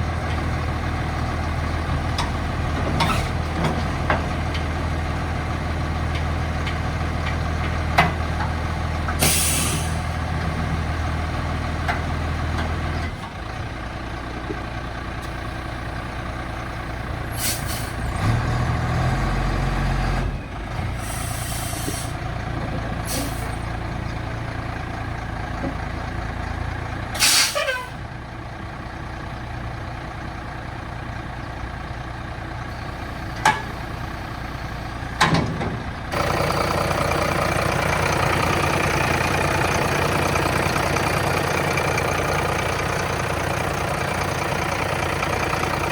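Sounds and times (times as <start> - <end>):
diesel truck engine idling: 0.0 - 45.9
air brake hisses: 9.2 - 10.1, 17.4 - 18.0, 21.0 - 22.2, 23.1 - 23.6, 27.2 - 27.9.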